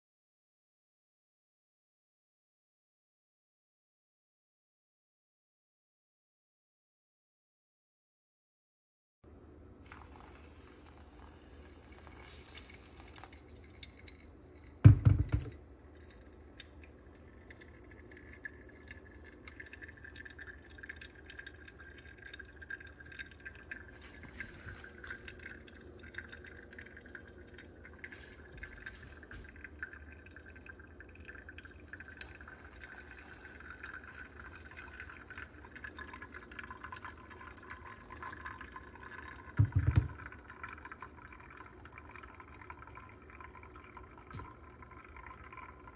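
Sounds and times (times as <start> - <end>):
liquid pouring into vessel: 9.8 - 45.9.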